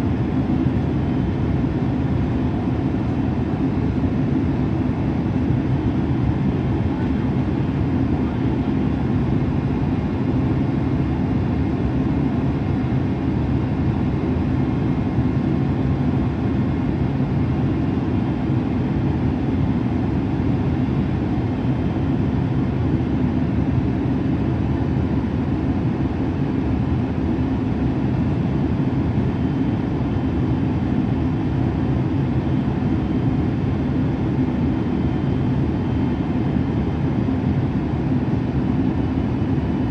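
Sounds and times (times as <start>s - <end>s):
faint steady whines: 0.0s - 39.9s
jet engine cabin rumble: 0.0s - 39.9s.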